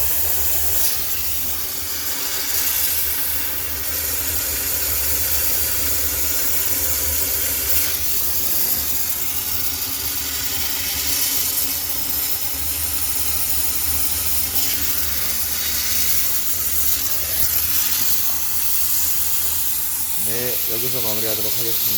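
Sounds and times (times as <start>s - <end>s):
steam cleaner hissing: 0.0s - 21.9s.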